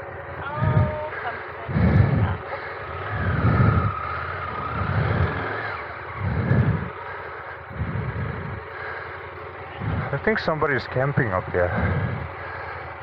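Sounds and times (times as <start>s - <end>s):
motorcycle engine revving: 0.0s - 13.0s
rising and falling whine: 3.1s - 8.7s.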